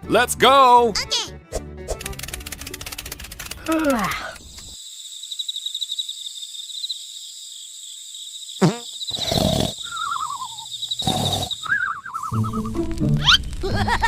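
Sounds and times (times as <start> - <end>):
falling whistle: 11.6 - 13.4.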